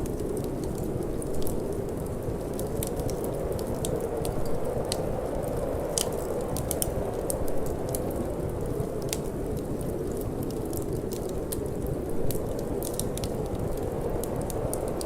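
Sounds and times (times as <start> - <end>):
low rushing of fire: 0.0 - 15.0
wood fire crackling: 0.0 - 15.0.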